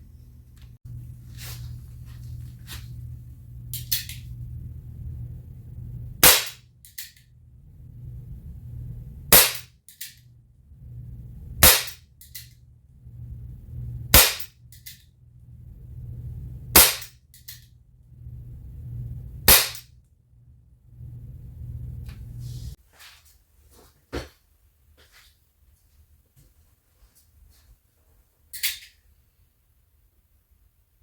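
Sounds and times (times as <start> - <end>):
air pistol shots: 6.2 - 6.6, 9.3 - 9.7, 11.6 - 12.0, 14.1 - 14.5, 16.8 - 17.1, 19.5 - 19.8.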